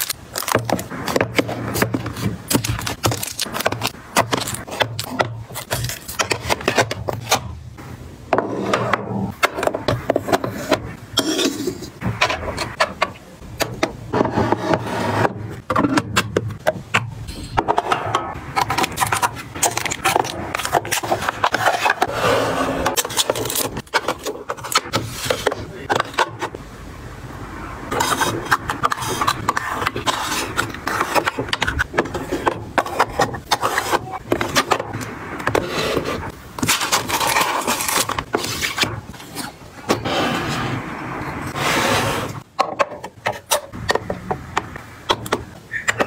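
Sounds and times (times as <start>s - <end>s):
scraping and rubbing: 8.4s - 26.6s, 27.9s - 43.8s.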